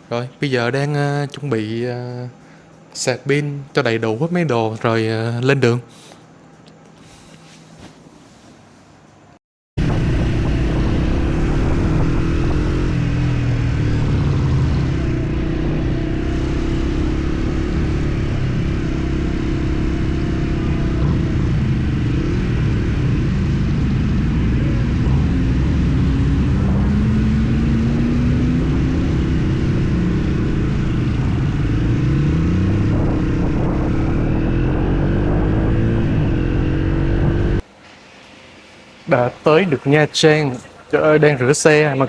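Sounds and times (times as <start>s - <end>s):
motorcycle engine accelerating: 9.8s - 37.7s.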